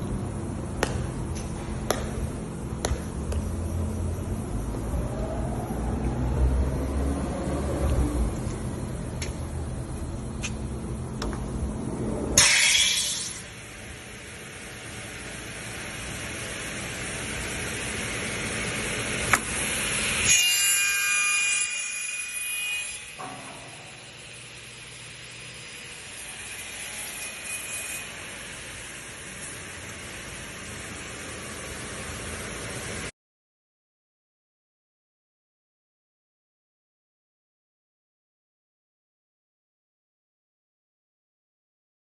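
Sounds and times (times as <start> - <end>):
high ringing whine: 8.2 - 18.2.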